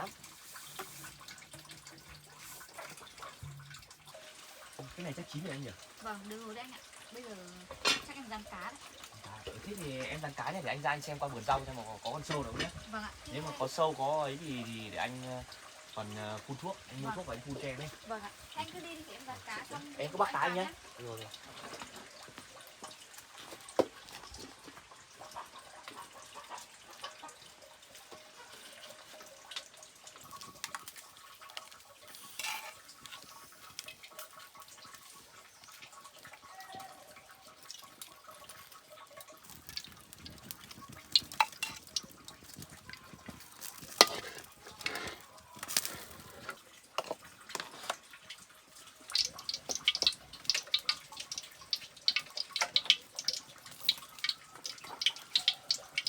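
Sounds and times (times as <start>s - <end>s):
pots and utensils clinking: 0.0s - 56.0s
running water: 0.0s - 56.0s
sharp ticks and crackles: 25.6s - 36.5s, 37.2s - 56.0s.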